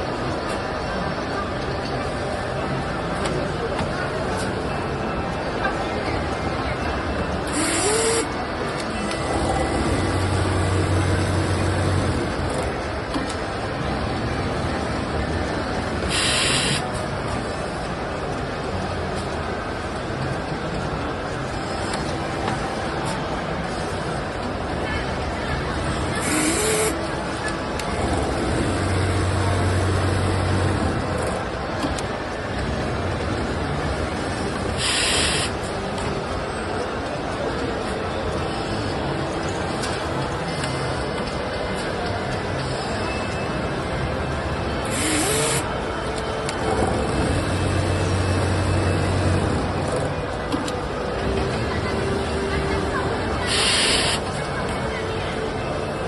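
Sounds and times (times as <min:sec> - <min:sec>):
sewing machine running: 0:07.5 - 0:08.2, 0:25.8 - 0:27.0, 0:27.9 - 0:31.2, 0:44.9 - 0:45.6, 0:46.6 - 0:50.1, 0:53.5 - 0:54.2.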